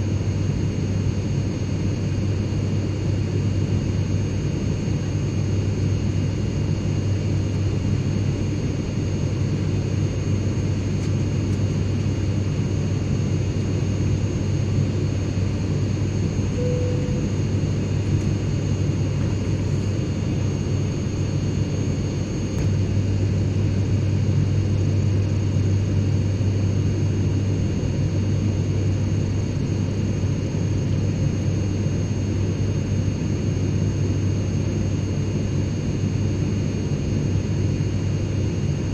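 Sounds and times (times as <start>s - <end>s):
airplane cabin drone: 0.0s - 38.9s
faint high whines: 16.5s - 18.8s.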